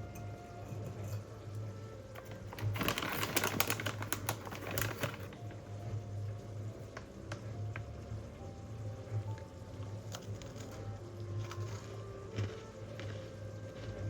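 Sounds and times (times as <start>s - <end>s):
rapid small clicks and rustling: 2.2s - 5.4s.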